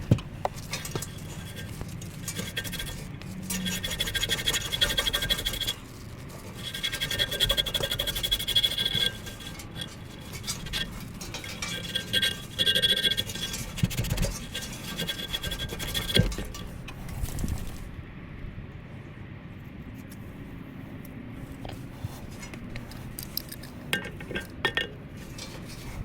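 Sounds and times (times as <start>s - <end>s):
scraping on sheet metal: 0.0s - 17.9s, 21.9s - 26.0s.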